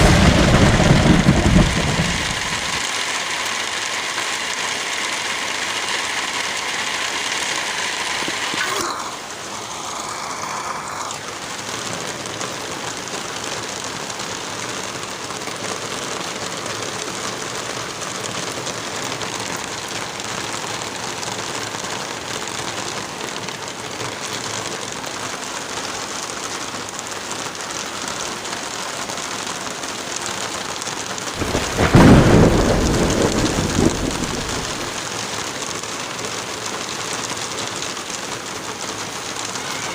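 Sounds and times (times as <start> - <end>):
thunder rumble: 0.0 - 2.9, 31.4 - 35.0
steady rain: 0.0 - 39.9.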